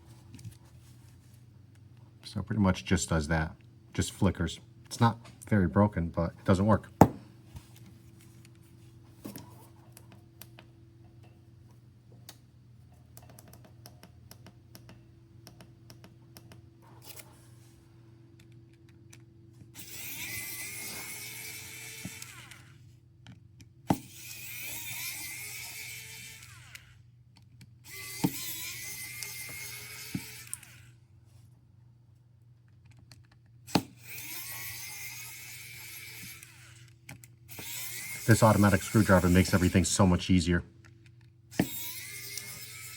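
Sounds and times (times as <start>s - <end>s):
electric screwdriver whirring: 19.8s - 22.8s, 23.9s - 27.0s, 27.8s - 31.0s, 33.7s - 39.9s, 41.5s - 42.9s.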